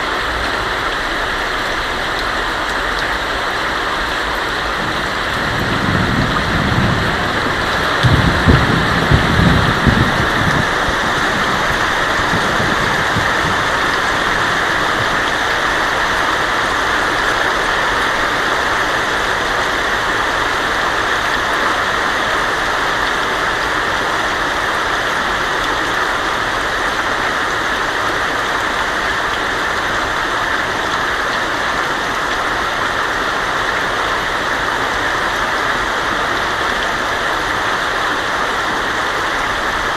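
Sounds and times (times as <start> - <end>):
heavy rain on a tin roof: 0.0 - 39.9
thunder rumbling: 4.4 - 16.4.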